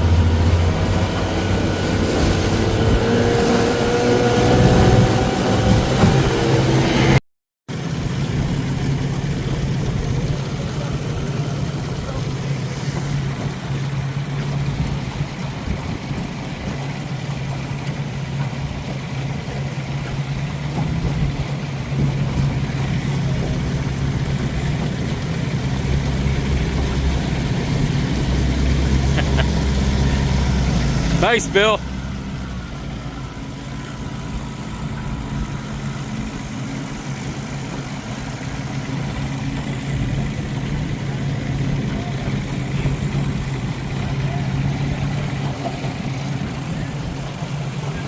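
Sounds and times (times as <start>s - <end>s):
deeper engine: 0.0s - 48.0s
outboard motor running: 0.0s - 48.0s.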